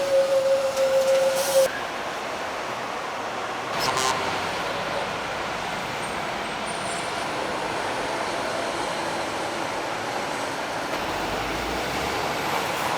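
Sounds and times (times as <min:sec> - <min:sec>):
heavy trucks passing: 0:03.8 - 0:12.9.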